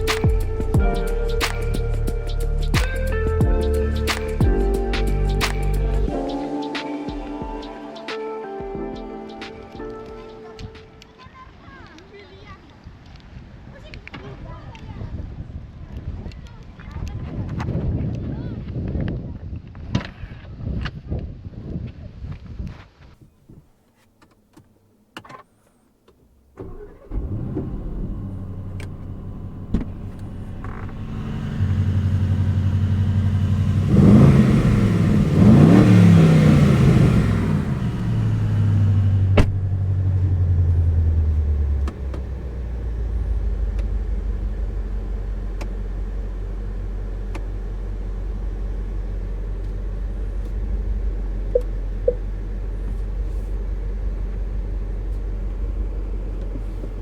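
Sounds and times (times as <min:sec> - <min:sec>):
car engine revving: 0:00.0 - 0:06.6, 0:26.6 - 0:57.0
car engine starting and idling: 0:00.0 - 0:06.8, 0:26.2 - 0:57.0.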